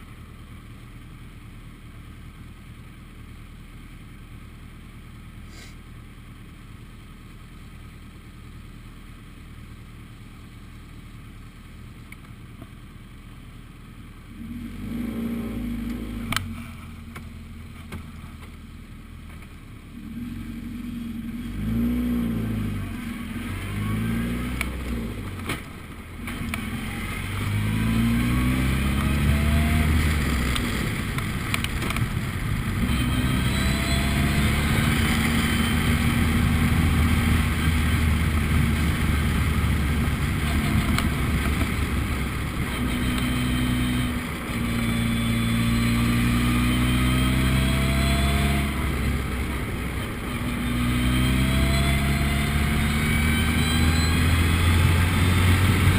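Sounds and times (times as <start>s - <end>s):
race car engine accelerating: 20.0s - 55.9s.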